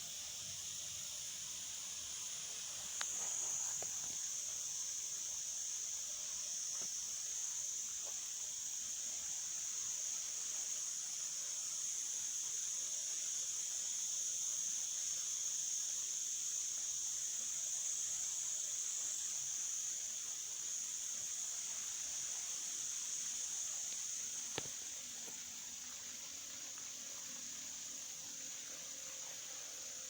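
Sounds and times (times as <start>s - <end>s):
insect chorus buzzing: 0.0s - 30.0s
faint ticks: 2.9s - 4.4s, 6.7s - 7.0s, 23.7s - 25.5s.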